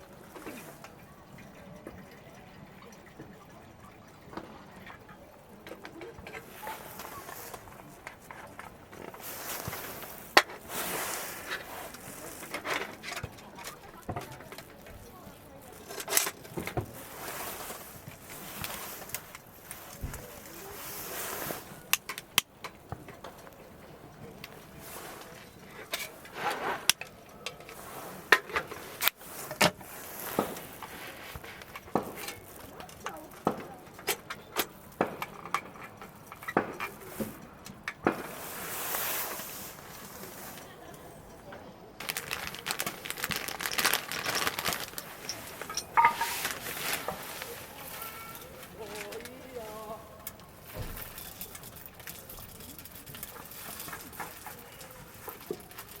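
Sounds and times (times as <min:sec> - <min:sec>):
rustling and rubbing: 0:06.3 - 0:22.0, 0:24.2 - 0:33.8, 0:38.1 - 0:40.8, 0:42.0 - 0:50.0
objects knocking and clinking: 0:42.2 - 0:47.7.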